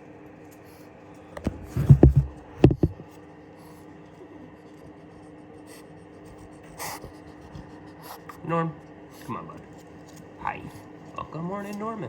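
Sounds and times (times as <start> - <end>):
knocks against plastic bin: 1.4 - 3.0.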